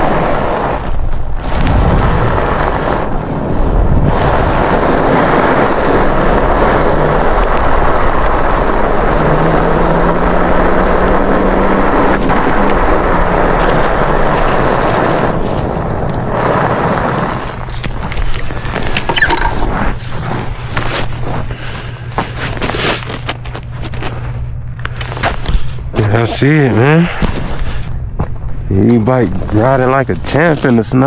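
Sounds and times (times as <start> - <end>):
wind buffeting microphone: 0.0 - 20.7
tyres on snow and ice: 0.0 - 31.0
low steady hum: 0.9 - 31.0.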